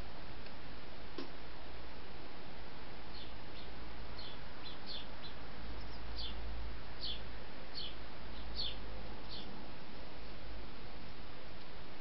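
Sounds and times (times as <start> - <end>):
small songbird chirping: 3.1 - 6.4, 7.0 - 9.6.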